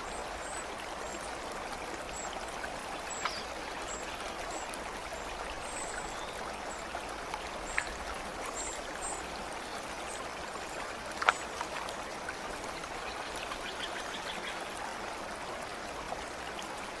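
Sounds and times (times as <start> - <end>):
stream water rushing: 0.0 - 17.0
sharp drip-like clicks: 3.0 - 5.9, 7.2 - 9.4, 10.8 - 12.0, 12.8 - 14.6.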